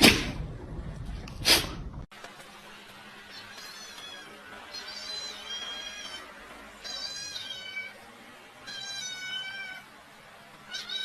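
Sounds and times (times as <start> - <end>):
cat meowing: 6.9 - 8.0, 8.6 - 9.8, 10.7 - 11.0.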